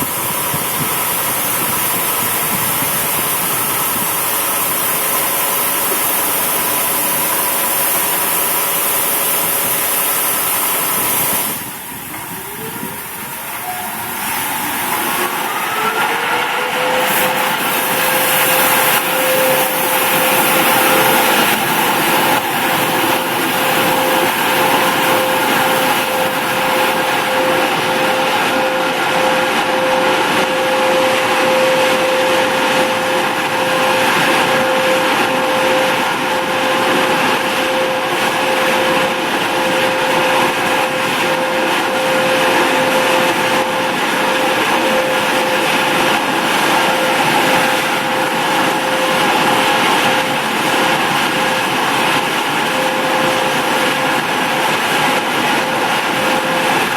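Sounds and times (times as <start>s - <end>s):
continuous rushing noise: 0.0s - 56.9s
electric motor whine: 11.5s - 51.6s.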